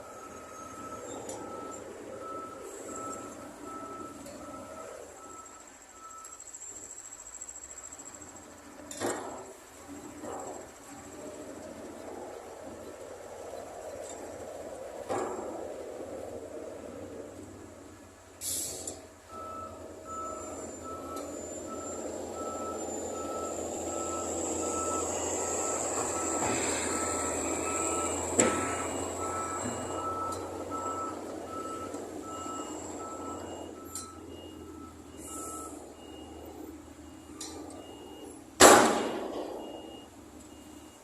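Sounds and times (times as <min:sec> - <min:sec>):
truck engine running: 0:00.0 - 0:41.0
truck reversing alarm beeping: 0:00.0 - 0:41.0
higher-pitched backup beeper: 0:19.3 - 0:36.5.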